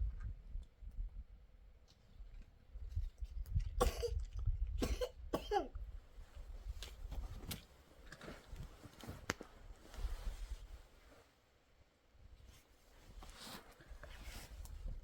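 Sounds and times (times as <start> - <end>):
person coughing: 3.8 - 4.2, 4.8 - 5.8.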